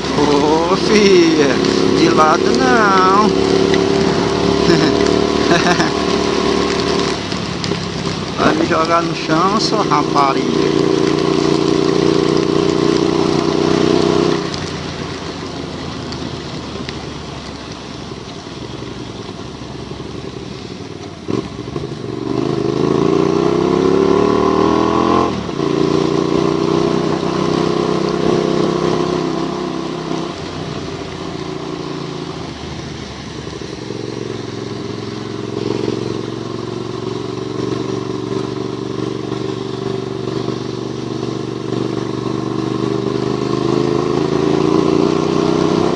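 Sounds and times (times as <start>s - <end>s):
motorcycle engine running: 0.0s - 17.4s, 18.5s - 45.9s
tyres hissing through water: 0.0s - 45.9s.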